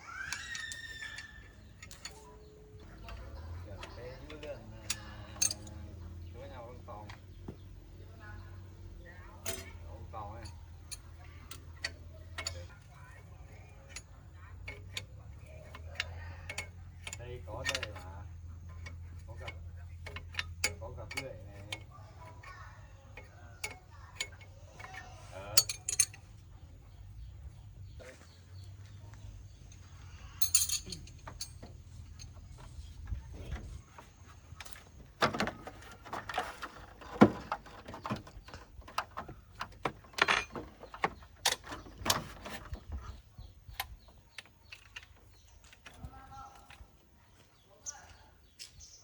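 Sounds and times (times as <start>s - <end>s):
metal tools clinking: 0.4s - 6.0s, 9.4s - 22.4s, 23.1s - 26.5s, 29.5s - 33.6s, 34.6s - 46.8s.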